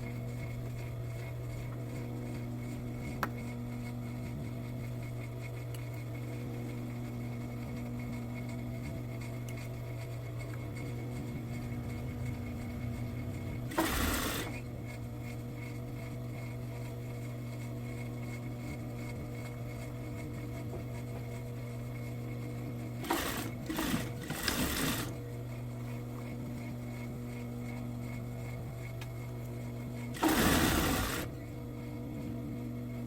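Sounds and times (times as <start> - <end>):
sewing machine motor humming: 11.9 - 15.1, 22.9 - 25.4, 30.1 - 31.6
sewing machine stitching: 13.7 - 14.7, 23.0 - 25.2, 30.1 - 31.4.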